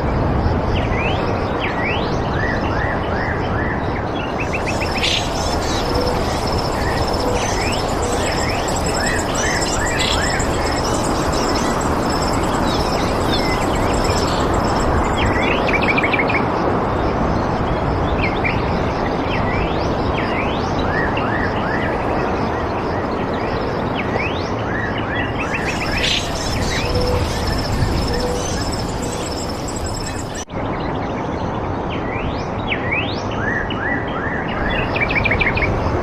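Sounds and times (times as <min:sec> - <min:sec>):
steady rushing noise: 0:04.0 - 0:19.4, 0:25.3 - 0:30.5
birds chirping: 0:04.3 - 0:15.9, 0:25.4 - 0:30.5
thin high pulsing tone: 0:04.4 - 0:16.1, 0:25.4 - 0:30.5.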